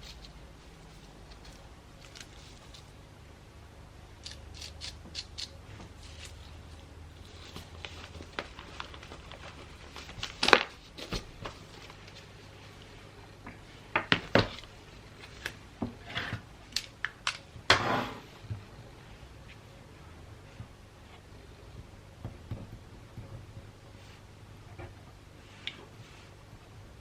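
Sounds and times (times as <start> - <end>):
wrapping paper rustling: 0.0 - 3.0, 4.6 - 13.0.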